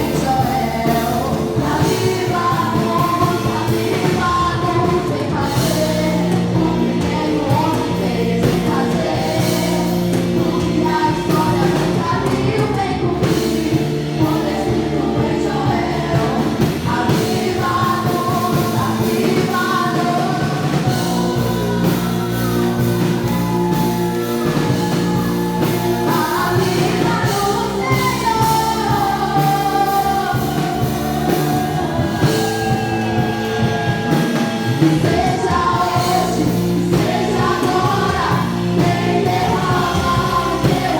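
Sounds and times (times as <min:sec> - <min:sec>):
bass: 0:00.0 - 0:40.9
drum beats: 0:00.0 - 0:40.9.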